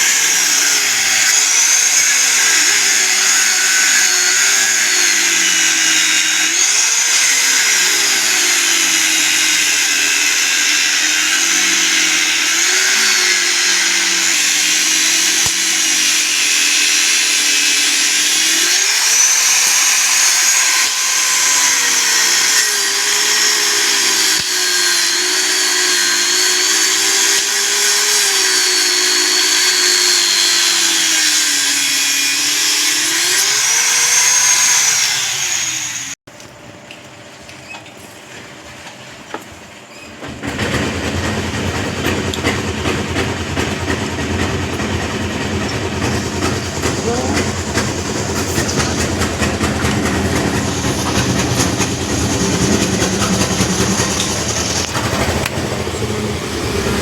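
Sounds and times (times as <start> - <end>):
power tool motor: 0.0 - 36.2, 45.6 - 57.0
rough machine noise: 0.0 - 36.2, 40.2 - 57.0.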